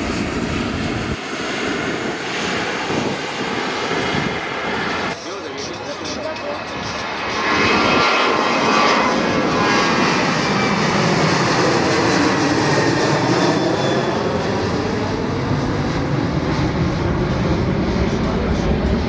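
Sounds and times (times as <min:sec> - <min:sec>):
jet engine low rumble: 0:00.0 - 0:19.0
jet engines whining: 0:00.0 - 0:19.0.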